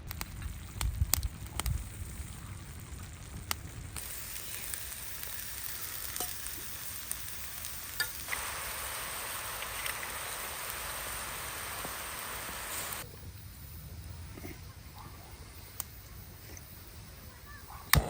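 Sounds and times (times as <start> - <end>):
food sizzling in a hot pan: 0.1 - 13.0.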